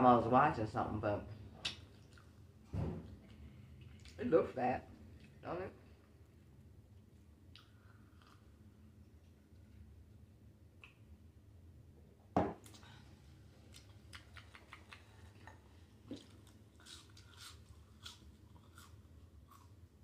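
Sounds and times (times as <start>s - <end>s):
wet chewing clicks and smacks: 1.6s - 4.2s, 13.6s - 19.8s.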